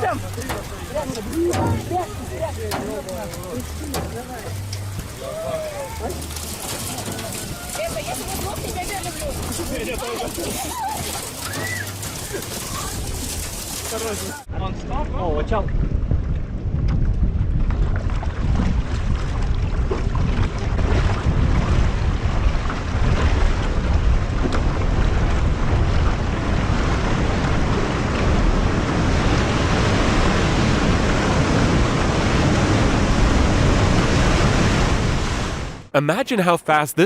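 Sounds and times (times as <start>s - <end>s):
surf rushing: 0.0s - 14.5s, 21.0s - 35.9s
wind buffeting microphone: 14.4s - 35.8s
stormy wind: 14.4s - 35.9s.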